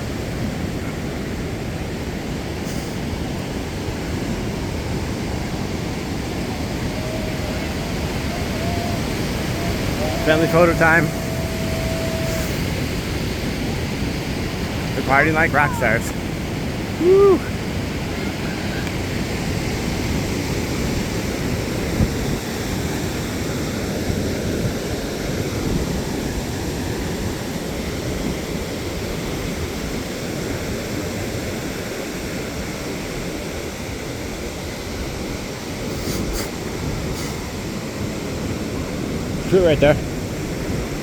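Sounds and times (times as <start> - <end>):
ocean surf washing onto beach: 0.0 - 41.0
wind buffeting microphone: 3.2 - 30.1.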